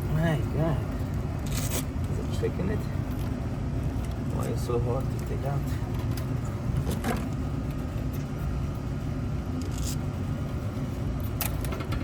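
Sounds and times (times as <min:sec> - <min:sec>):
steady low rumble: 0:00.0 - 0:12.0
wire connectors clicking and scraping: 0:01.0 - 0:02.4, 0:09.6 - 0:10.1.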